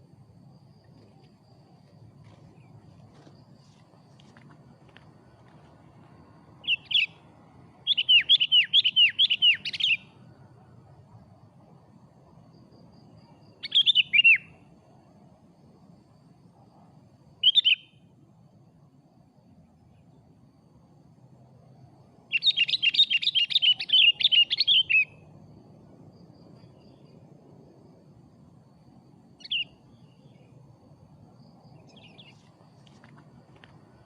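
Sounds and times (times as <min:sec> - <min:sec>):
bulbul calling and chattering: 0:07.9 - 0:10.1, 0:22.3 - 0:25.2, 0:29.4 - 0:29.7.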